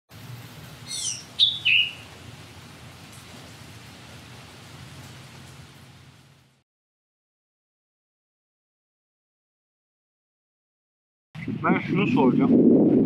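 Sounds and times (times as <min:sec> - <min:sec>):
low background hum and hiss: 0:00.1 - 0:06.6
short bird calls: 0:00.9 - 0:02.2.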